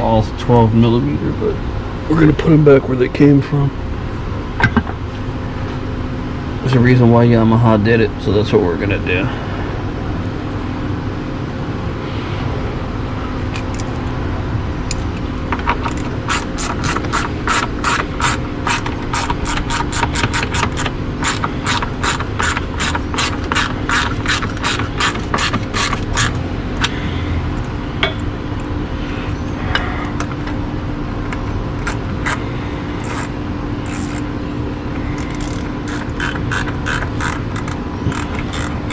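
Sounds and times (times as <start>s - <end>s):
steady background hum: 0.0s - 38.9s
socket ratchet wrench clicking: 15.8s - 27.0s, 31.8s - 32.4s, 33.0s - 34.3s, 35.1s - 38.9s.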